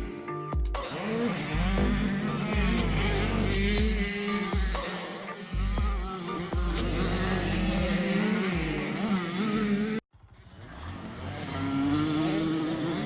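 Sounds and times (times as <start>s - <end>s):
music: 0.0s - 8.1s
motocross bike engine revving: 0.8s - 13.0s.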